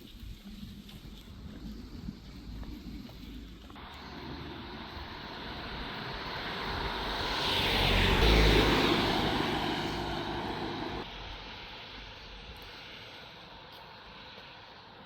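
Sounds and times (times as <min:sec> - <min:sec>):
vehicle passing by: 0:03.8 - 0:12.0.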